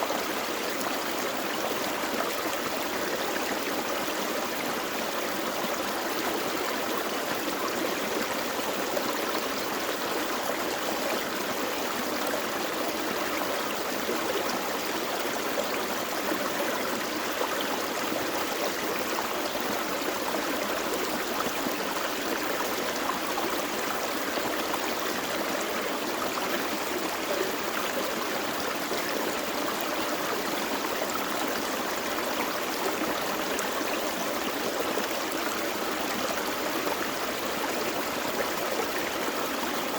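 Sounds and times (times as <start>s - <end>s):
creek burbling over rocks: 0.0s - 39.9s.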